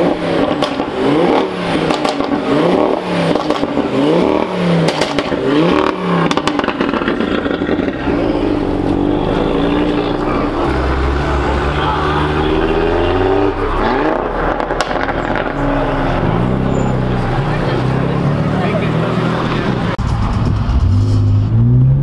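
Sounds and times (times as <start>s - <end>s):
car engine revving: 0.0s - 22.0s
exhaust pops: 4.8s - 8.2s, 14.1s - 15.8s.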